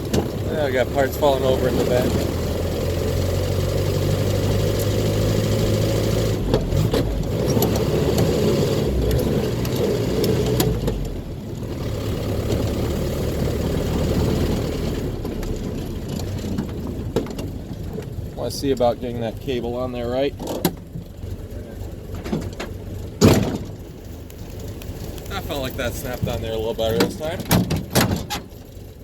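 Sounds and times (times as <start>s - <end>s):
car engine running: 0.0s - 29.0s
knocks and rattles: 15.2s - 18.9s, 22.0s - 28.7s.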